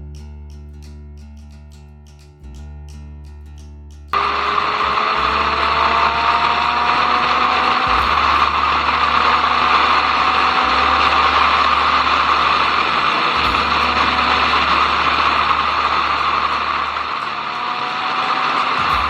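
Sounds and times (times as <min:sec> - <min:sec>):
motorcycle engine at speed: 0:04.2 - 0:19.0.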